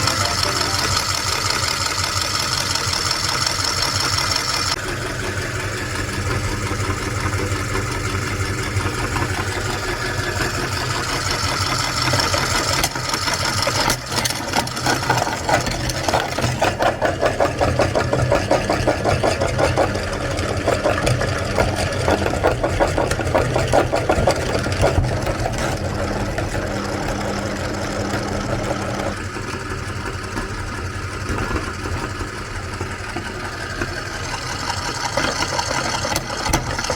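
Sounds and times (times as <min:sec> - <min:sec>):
rapid pulsing churn: 0:00.0 - 0:27.7
meat grinder motor running: 0:00.0 - 0:36.9.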